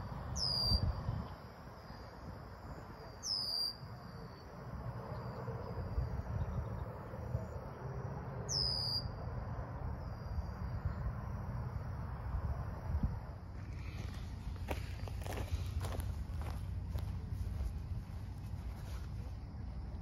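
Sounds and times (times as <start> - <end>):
low steady rumble: 9.2 - 20.0.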